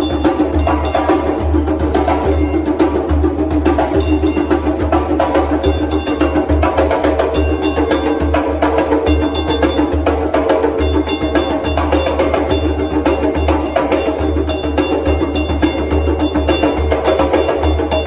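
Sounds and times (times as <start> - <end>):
street drummers playing: 0.0 - 18.0.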